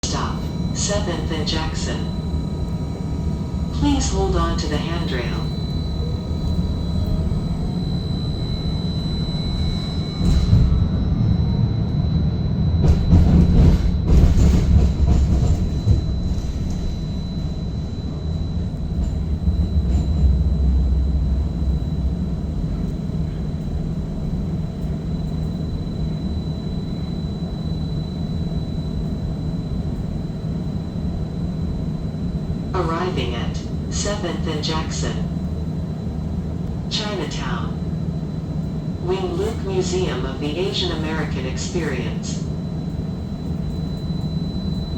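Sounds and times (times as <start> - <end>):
streetcar wheels rumbling on track: 0.0 - 7.9, 12.7 - 25.5
thin high whine: 0.0 - 13.2, 15.4 - 44.9.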